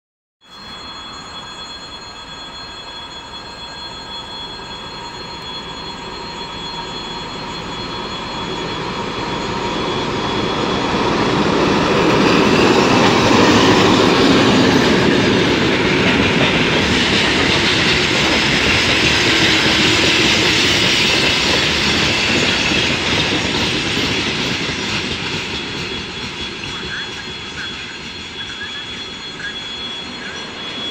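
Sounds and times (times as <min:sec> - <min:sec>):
diesel locomotive passing: 0:02.0 - 0:30.9.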